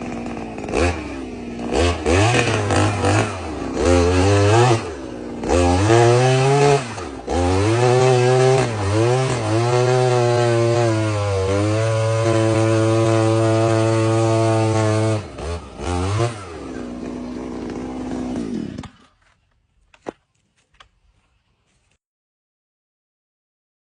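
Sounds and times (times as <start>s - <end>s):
two-stroke engine revving: 0.0s - 19.0s.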